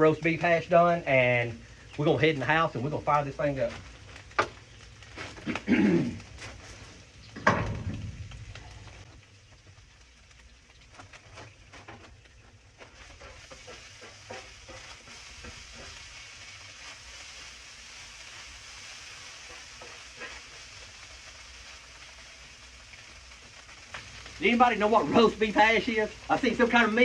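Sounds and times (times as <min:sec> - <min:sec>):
food sizzling in a pan: 0:03.0 - 0:27.0
stirring clicks and scrapes: 0:08.2 - 0:17.3, 0:19.0 - 0:24.4.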